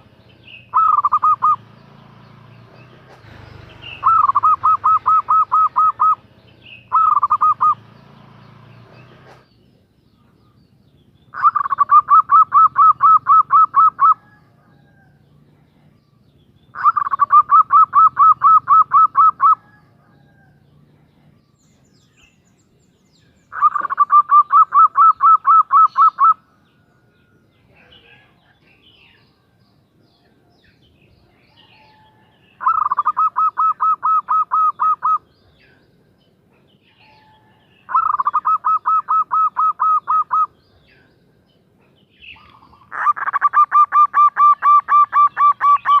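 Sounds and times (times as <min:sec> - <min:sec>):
dove cooing rapidly: 0:00.0 - 0:01.7, 0:03.2 - 0:07.8, 0:11.3 - 0:15.7, 0:16.7 - 0:20.6, 0:23.5 - 0:26.4, 0:31.6 - 0:35.7, 0:37.1 - 0:40.9, 0:42.2 - 0:46.0.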